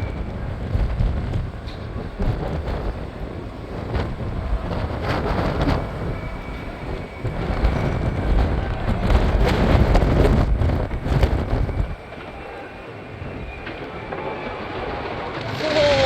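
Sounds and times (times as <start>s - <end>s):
fireworks booming: 0.8s - 16.0s
fireworks crackling: 0.8s - 16.0s.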